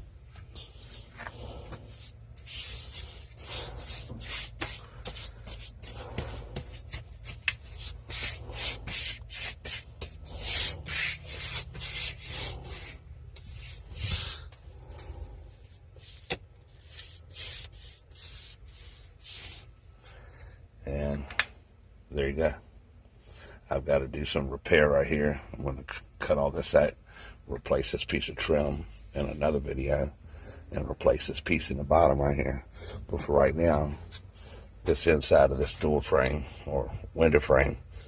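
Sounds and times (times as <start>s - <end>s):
paintbrush strokes on wood: 0.8s - 14.6s, 16.0s - 19.7s.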